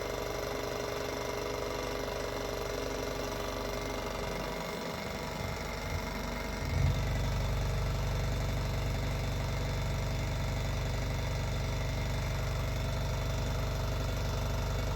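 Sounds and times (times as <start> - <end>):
engine running mechanical rhythm: 0.0 - 14.9.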